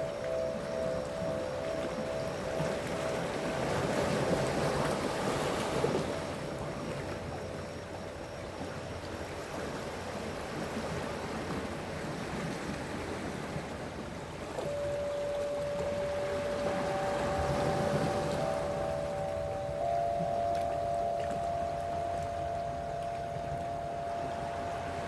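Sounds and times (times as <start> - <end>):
soft held tones: 0.0 - 8.7, 14.6 - 25.0
sea waves washing on shore: 14.6 - 25.0.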